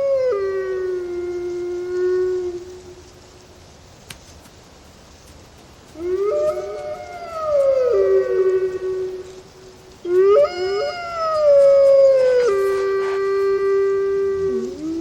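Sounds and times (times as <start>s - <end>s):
wolves howling: 0.0s - 3.0s, 6.0s - 15.0s.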